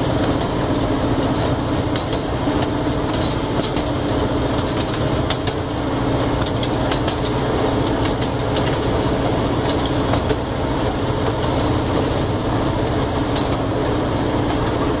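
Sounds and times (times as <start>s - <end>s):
ride-on train rumbling: 0.0s - 15.0s
wheels clicking and rattling: 0.0s - 15.0s.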